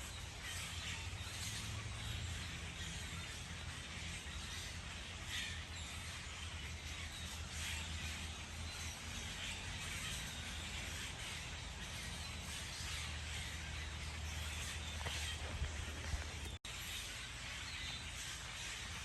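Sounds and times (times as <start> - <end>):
faint bird calls: 0.0 - 19.0.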